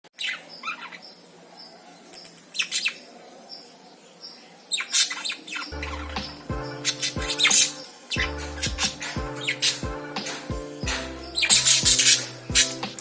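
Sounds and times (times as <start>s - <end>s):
lovebirds chirping: 0.1s - 13.0s
music with low notes: 5.7s - 13.0s.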